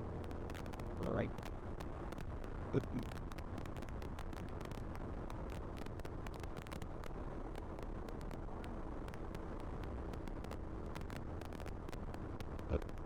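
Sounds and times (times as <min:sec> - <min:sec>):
wind crackling on microphone: 0:00.0 - 0:13.0.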